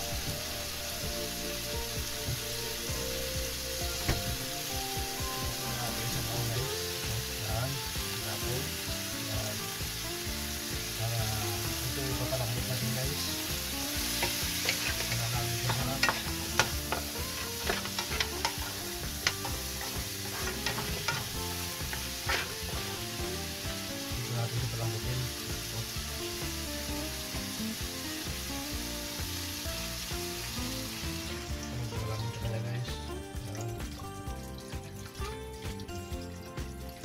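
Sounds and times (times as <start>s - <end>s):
meat sizzling in a pan: 0.0s - 37.0s
wooden spoon scraping a pan: 14.1s - 22.8s.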